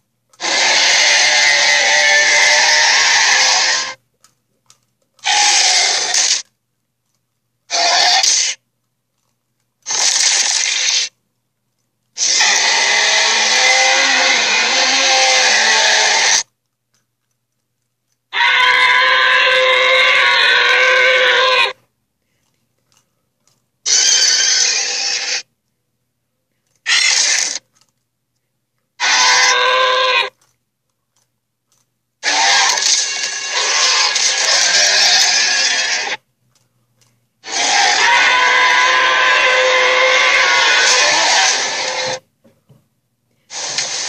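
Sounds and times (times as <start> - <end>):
dinosaur roars: 0.4 - 4.0, 5.2 - 6.4, 12.2 - 16.4, 29.0 - 30.3, 32.2 - 36.2, 37.5 - 42.2.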